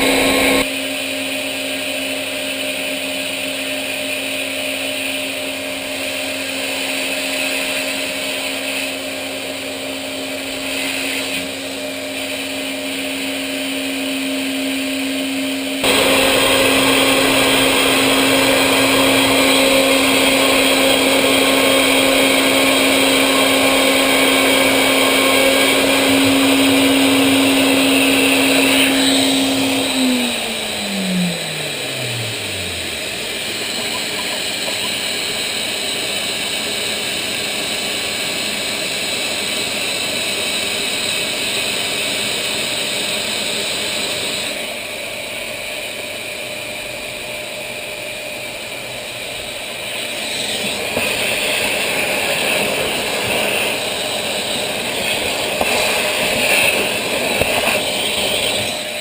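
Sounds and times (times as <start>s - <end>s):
machine spindle whining: 0.0s - 0.7s, 3.5s - 59.0s.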